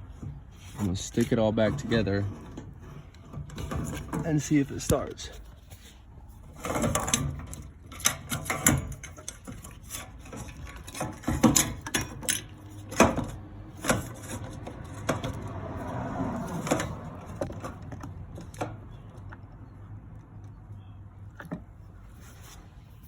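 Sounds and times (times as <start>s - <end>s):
hands handling tools and parts: 0.0s - 15.5s.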